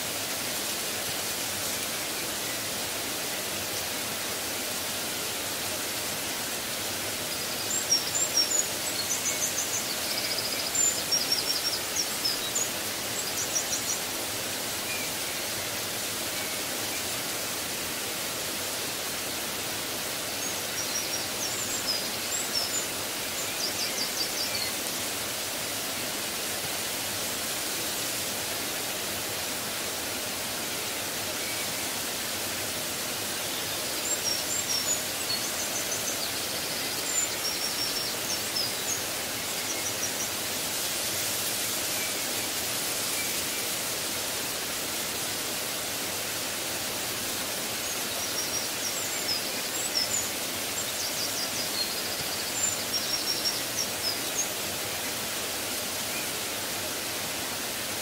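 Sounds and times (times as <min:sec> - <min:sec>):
steady hiss: 0:00.0 - 0:58.0
small birds chirping: 0:19.0 - 0:57.0.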